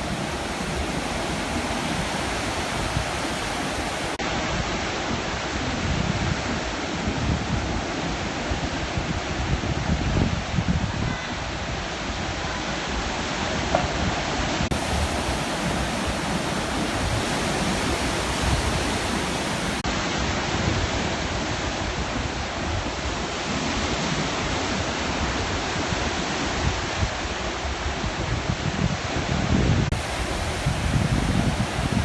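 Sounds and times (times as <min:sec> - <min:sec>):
waves breaking: 0:00.0 - 0:04.4, 0:13.6 - 0:21.7, 0:29.9 - 0:32.0.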